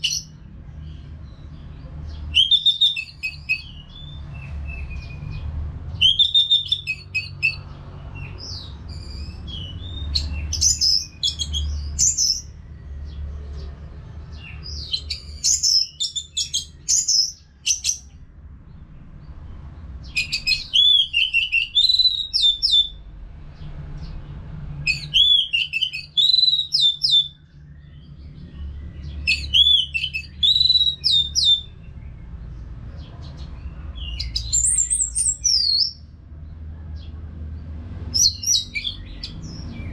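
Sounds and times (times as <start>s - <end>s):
bird singing whistled notes: 2.3s - 5.4s, 6.0s - 7.6s, 8.2s - 12.5s, 14.3s - 18.1s, 20.0s - 23.0s, 24.9s - 28.1s, 28.7s - 31.8s, 34.0s - 36.0s, 38.2s - 39.9s.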